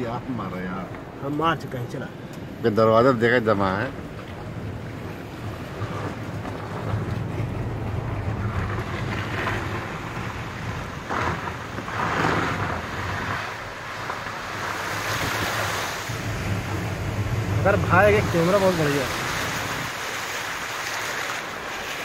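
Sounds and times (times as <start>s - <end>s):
low engine hum: 3.8s - 21.2s.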